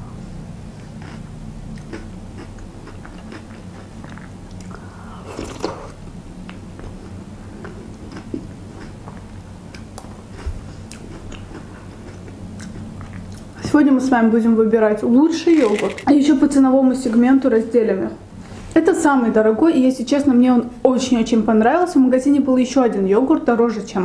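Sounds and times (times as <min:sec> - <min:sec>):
steady low hum: 0:00.0 - 0:24.0
chewing crunchy food: 0:00.8 - 0:13.6, 0:15.5 - 0:16.1.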